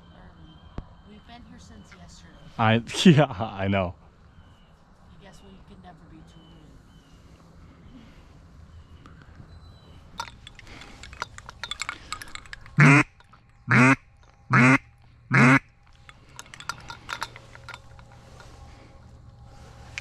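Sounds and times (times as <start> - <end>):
light clicks and rustling: 9.0 - 20.0
duck call quacks: 12.8 - 13.1, 13.7 - 15.7.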